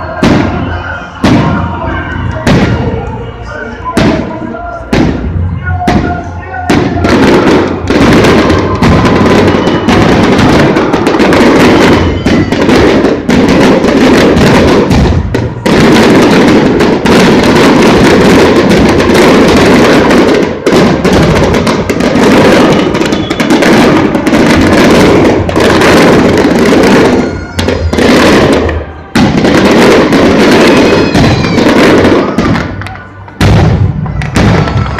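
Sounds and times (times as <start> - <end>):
fireworks bursting: 0.0 - 34.9.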